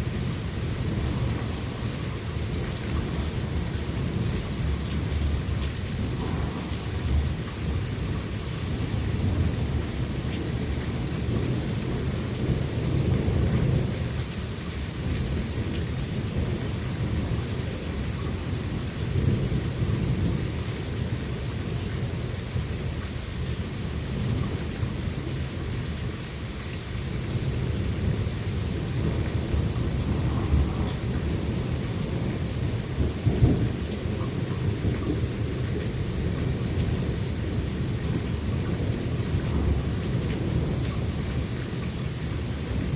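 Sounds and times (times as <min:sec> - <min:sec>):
thunder rumbling: 0:00.0 - 0:14.0, 0:27.2 - 0:42.9
steady rain falling: 0:00.0 - 0:42.9.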